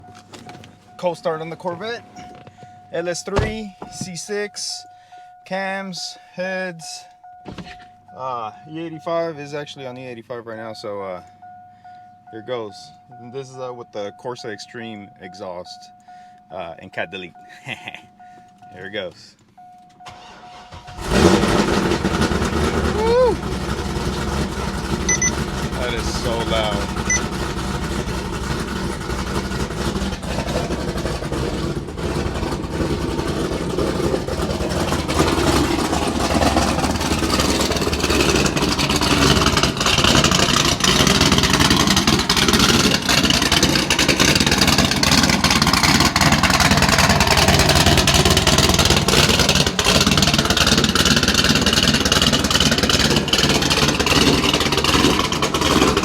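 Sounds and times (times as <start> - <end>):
loud car exhaust: 20.8 - 56.0.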